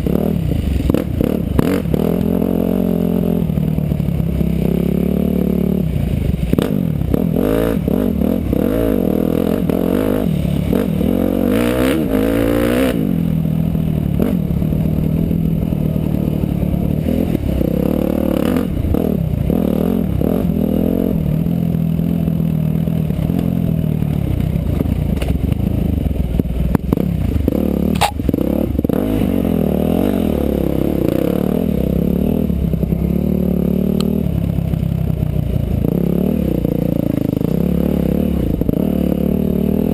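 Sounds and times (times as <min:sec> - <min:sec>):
motorcycle engine revving: 0:00.0 - 0:39.9
sharp click: 0:27.9 - 0:28.2.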